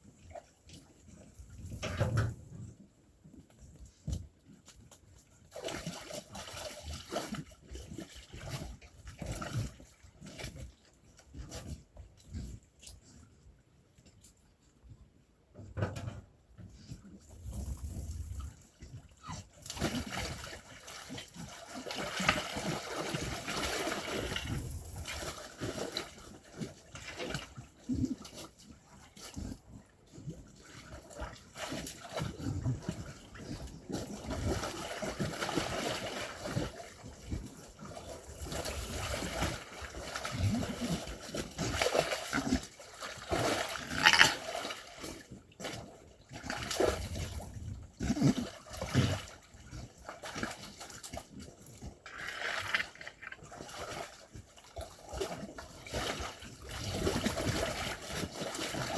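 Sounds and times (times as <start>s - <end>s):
water splashing and trickling: 0.0s - 13.3s, 16.8s - 58.9s
animal noises: 43.8s - 44.4s.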